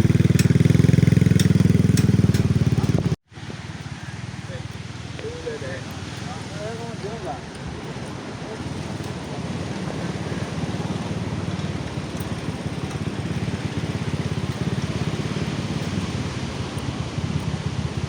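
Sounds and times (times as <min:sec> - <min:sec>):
small engine putter: 0:00.0 - 0:03.2, 0:07.5 - 0:18.0.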